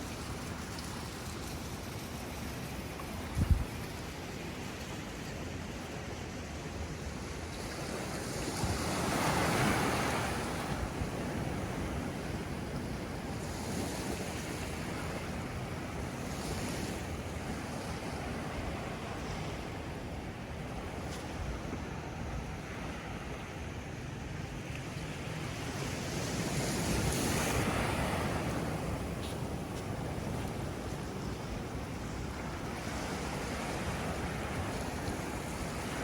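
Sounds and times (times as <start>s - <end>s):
ocean surf washing onto beach: 0.0s - 36.0s
wind buffeting microphone: 2.7s - 4.1s, 25.2s - 36.0s.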